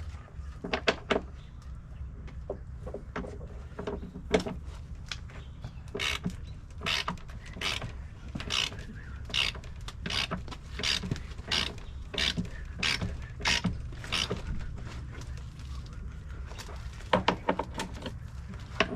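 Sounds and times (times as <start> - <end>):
low hum: 0.0 - 18.9
ratchet wrench rasping: 6.0 - 14.4.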